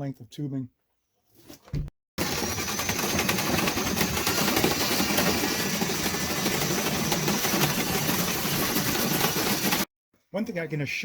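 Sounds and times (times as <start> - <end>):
power drill spinning brush in duct: 2.2 - 9.9.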